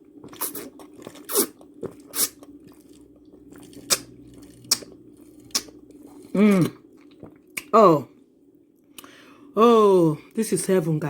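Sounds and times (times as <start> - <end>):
person sipping loudly: 0.2 - 7.4
lip smacks: 0.3 - 2.5, 3.5 - 6.1.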